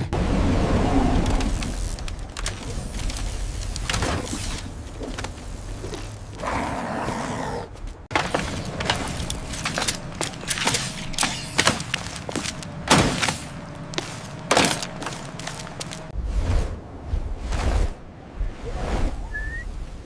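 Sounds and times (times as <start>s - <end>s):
rapid irregular clicks and knocks: 8.0s - 16.1s.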